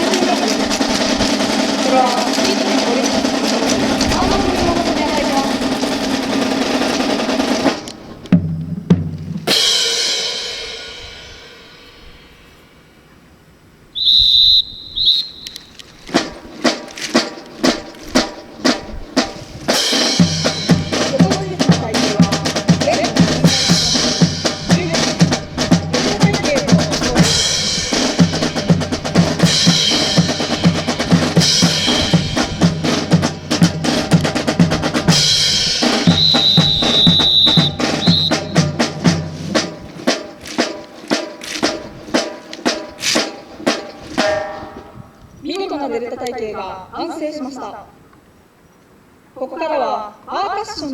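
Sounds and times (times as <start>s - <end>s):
marching snare and bass drum: 0.0s - 12.0s, 14.6s - 45.2s
high steady whistle: 13.9s - 15.8s, 36.0s - 38.8s.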